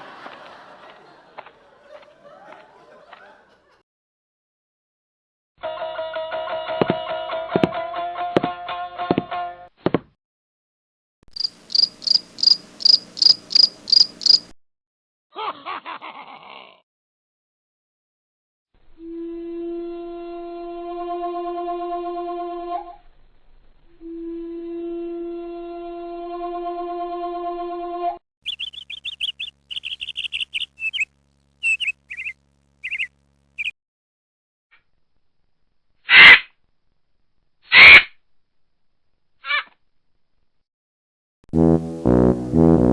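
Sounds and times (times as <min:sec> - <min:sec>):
cricket chirping: 0:11.3 - 0:14.5
high bird chirps: 0:11.4 - 0:14.5, 0:28.4 - 0:33.8
held woodwind note: 0:41.5 - 0:42.9.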